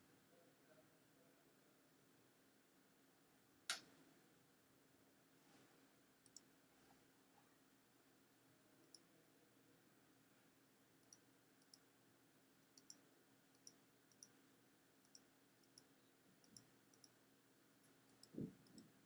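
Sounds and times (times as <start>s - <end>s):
computer mouse clicks: 6.2s - 6.5s, 11.0s - 11.8s, 12.6s - 13.0s, 13.6s - 14.3s, 15.0s - 17.2s, 18.1s - 18.9s.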